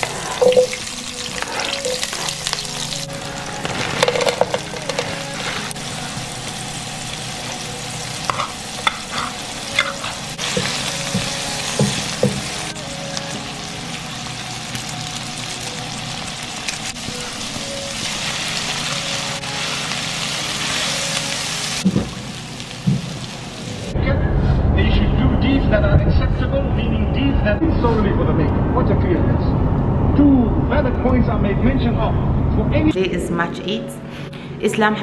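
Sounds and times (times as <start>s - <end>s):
vegetables sizzling in a pan: 0.0s - 23.9s.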